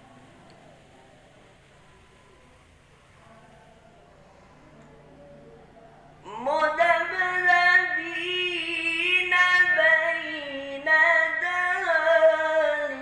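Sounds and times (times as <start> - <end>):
person reciting melodically: 6.2 - 13.0.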